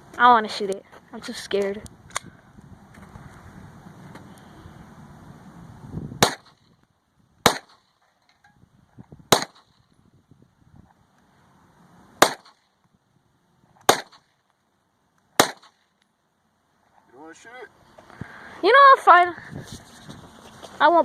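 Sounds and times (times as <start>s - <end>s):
gunshots: 6.2s - 6.6s, 7.4s - 7.9s, 9.3s - 9.8s, 12.2s - 12.6s, 13.9s - 14.3s, 15.4s - 15.8s.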